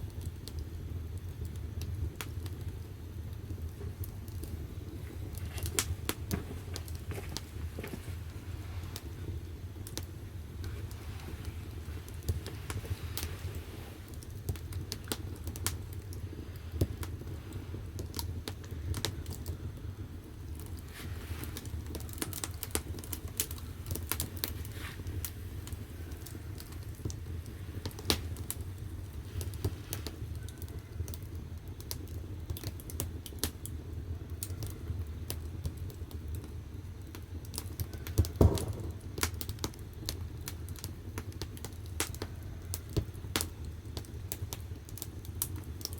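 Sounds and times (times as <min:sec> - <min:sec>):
firewood crackling and popping: 0:00.0 - 0:45.9
low rumble of fire: 0:00.0 - 0:45.9.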